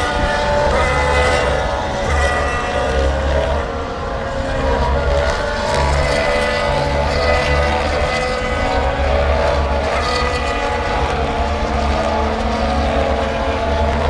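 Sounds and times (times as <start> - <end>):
racing car engines at high revs: 0.0 - 14.0.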